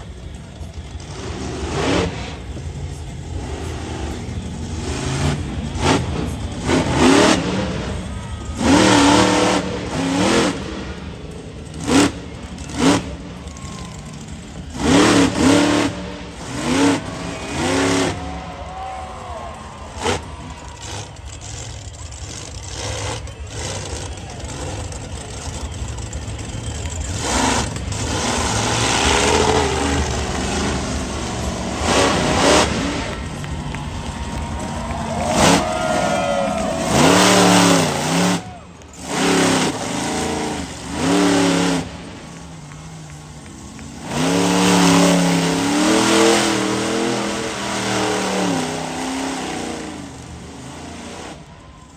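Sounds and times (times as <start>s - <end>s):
monster truck engine revving: 0.0s - 51.9s.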